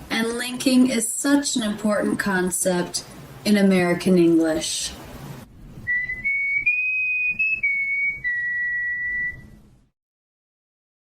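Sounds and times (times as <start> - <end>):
person whistling a short tune: 5.9 - 9.6.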